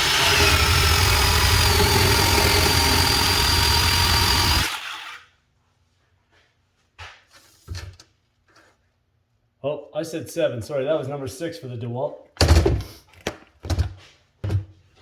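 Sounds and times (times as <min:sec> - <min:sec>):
bandsaw cutting pipe: 0:00.0 - 0:05.3.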